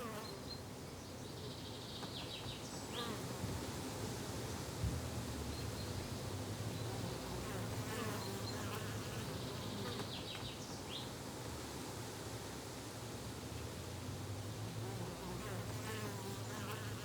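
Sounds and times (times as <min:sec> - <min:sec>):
insect buzzing: 0:00.0 - 0:00.4.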